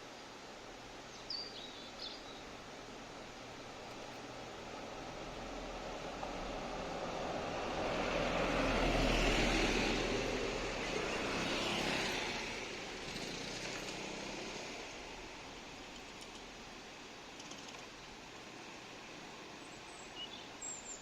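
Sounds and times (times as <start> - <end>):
vehicle passing by: 5.0 - 15.5.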